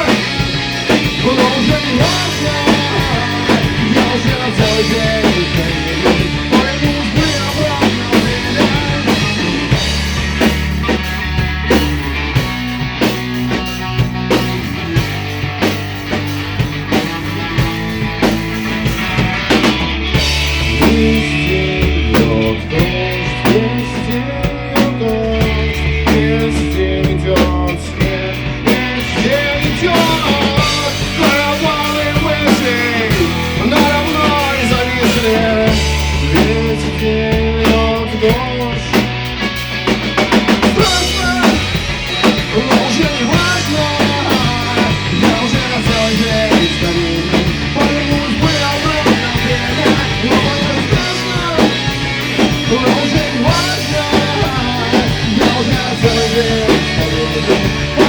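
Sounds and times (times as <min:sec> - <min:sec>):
bass guitar: 0:00.0 - 0:58.0
drum kit beat: 0:00.0 - 0:58.0
electric guitar melody: 0:00.0 - 0:58.0.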